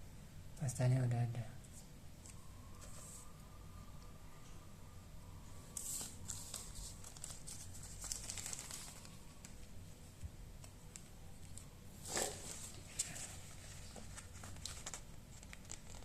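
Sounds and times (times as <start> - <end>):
faint steady hum: 0.0 - 16.0
crinkling and rustling: 5.8 - 16.0.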